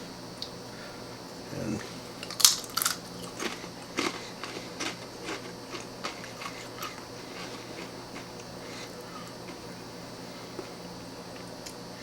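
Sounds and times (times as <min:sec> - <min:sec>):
person crunching a tortilla chip: 0:02.2 - 0:08.9.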